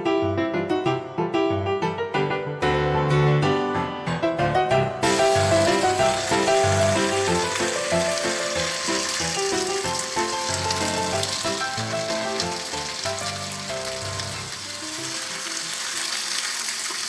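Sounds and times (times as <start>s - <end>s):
background music: 0.0s - 16.4s
curry sizzling in a frying pan: 5.0s - 17.0s.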